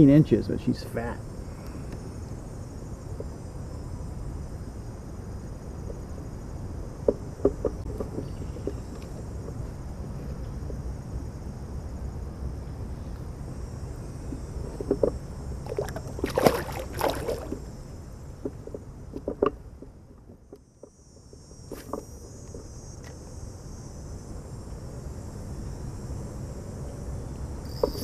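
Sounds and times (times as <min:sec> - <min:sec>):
high insect drone: 0:00.0 - 0:28.0.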